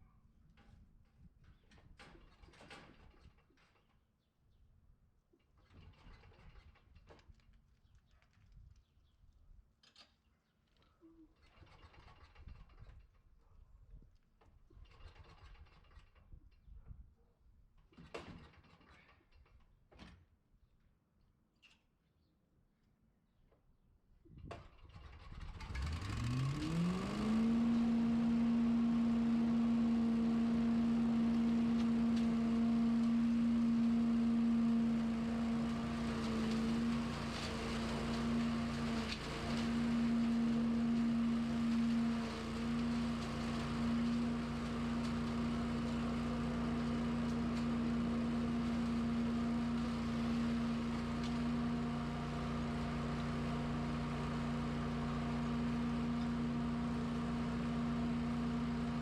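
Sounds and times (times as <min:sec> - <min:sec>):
lawn equipment motor spinning up: 0:24.6 - 0:59.0.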